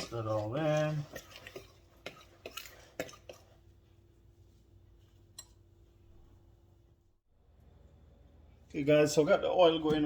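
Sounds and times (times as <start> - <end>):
utensil clinking against bowl: 0.0 - 3.6.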